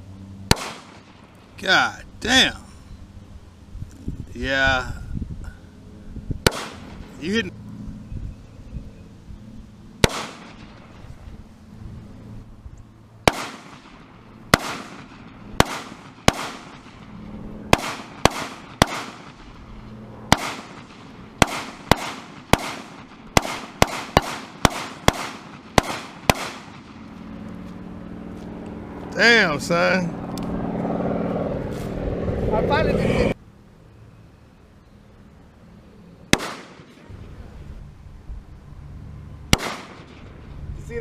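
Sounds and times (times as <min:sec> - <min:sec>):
gunshots with ringing tail: 0:00.5 - 0:01.3, 0:06.4 - 0:07.1, 0:10.0 - 0:11.0, 0:13.2 - 0:17.1, 0:17.7 - 0:19.6, 0:20.3 - 0:27.0, 0:36.3 - 0:37.1, 0:39.5 - 0:40.3.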